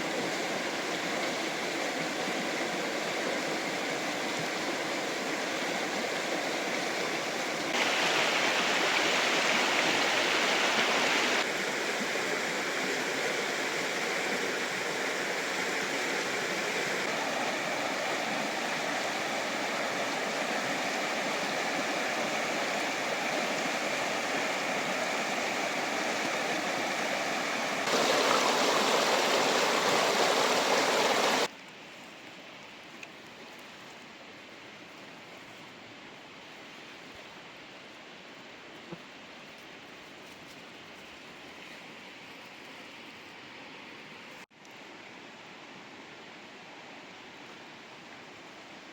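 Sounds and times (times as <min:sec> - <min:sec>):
rushing river water: 0:00.0 - 0:31.6.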